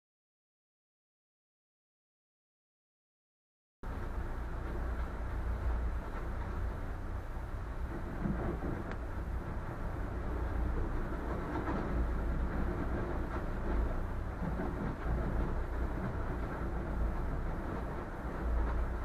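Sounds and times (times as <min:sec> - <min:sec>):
boat engine rumbling: 0:03.8 - 0:19.0.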